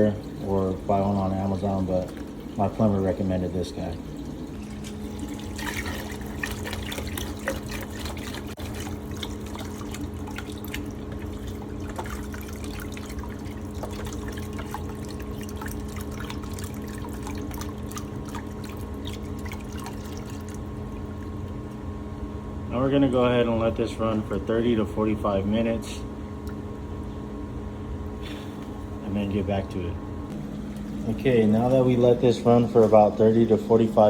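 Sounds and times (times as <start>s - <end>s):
water trickling and dripping: 0.0s - 21.9s, 30.3s - 34.0s
submersible pump humming: 0.0s - 34.0s.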